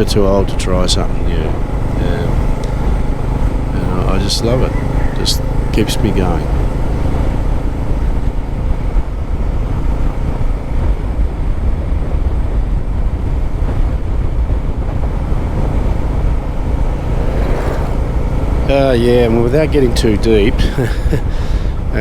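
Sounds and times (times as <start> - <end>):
motorcycle engine cruising: 0.0 - 22.0
wind on microphone: 7.9 - 19.9.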